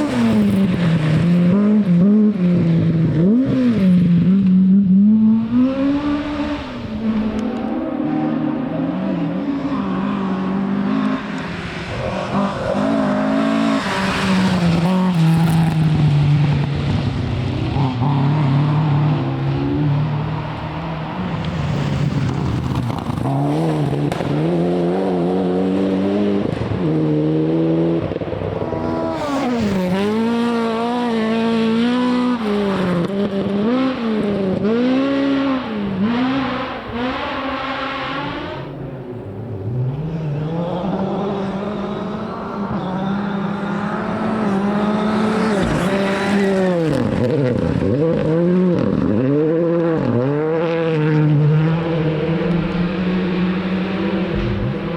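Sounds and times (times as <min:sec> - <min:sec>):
car engine revving hard: 0:22.1 - 0:54.9.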